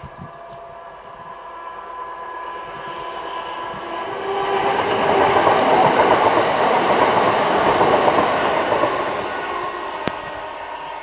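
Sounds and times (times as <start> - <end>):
train wheels clattering on rails: 3.2 - 10.7.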